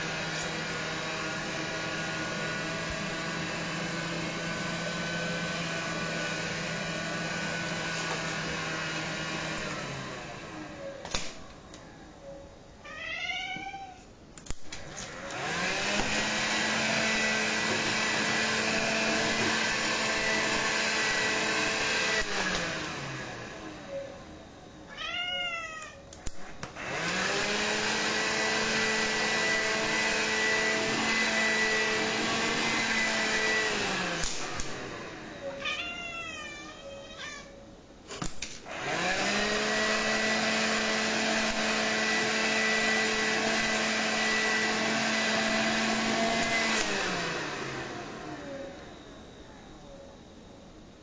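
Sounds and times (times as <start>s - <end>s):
vacuum cleaner running: 0.0s - 11.6s, 14.5s - 25.3s, 26.2s - 37.2s, 38.1s - 51.0s
cat meowing: 12.8s - 14.1s, 24.9s - 26.0s, 35.6s - 37.6s.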